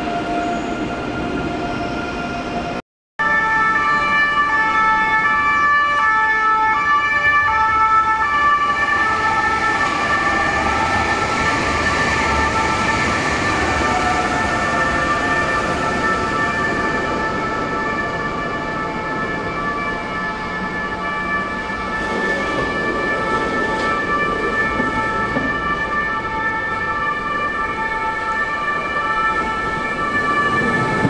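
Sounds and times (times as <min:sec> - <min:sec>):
train wheels rumbling: 0:08.6 - 0:31.0.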